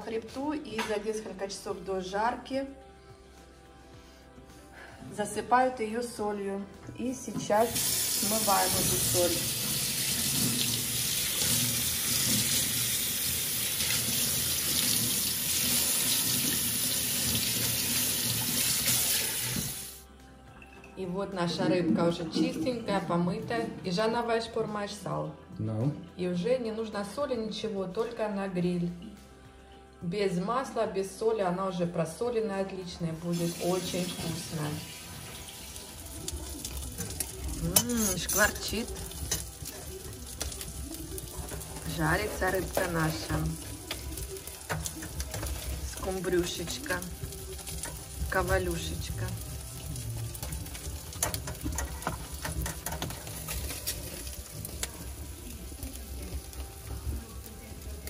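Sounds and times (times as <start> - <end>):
kitchen tap running over fish: 7.5 - 20.0, 33.4 - 57.2
fire crackling: 7.6 - 20.1, 33.3 - 58.0.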